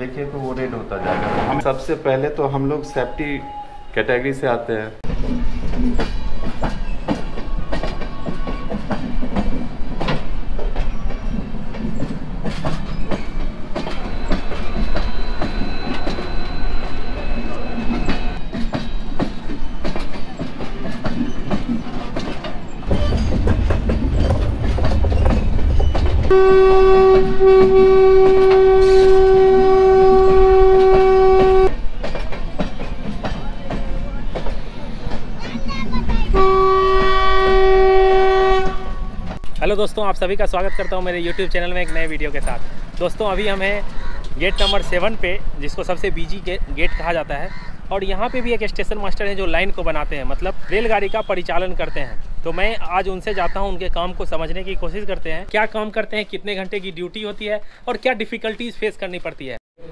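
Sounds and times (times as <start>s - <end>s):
locomotive horn blast: 0.9s - 1.7s, 26.2s - 31.8s, 36.3s - 39.3s
train wheels clicking over rail joints: 5.0s - 51.6s.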